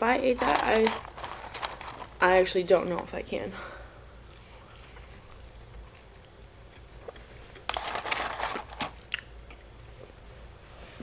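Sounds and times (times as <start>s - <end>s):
cardboard carton rustling: 0.2s - 3.1s, 7.8s - 8.9s
chewing french fries: 8.9s - 9.7s.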